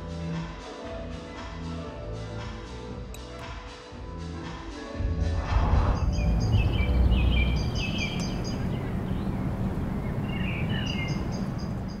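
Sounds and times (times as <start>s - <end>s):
low background rumble: 5.2s - 12.0s
birds chirping: 5.5s - 12.0s
birds warbling: 5.8s - 12.0s.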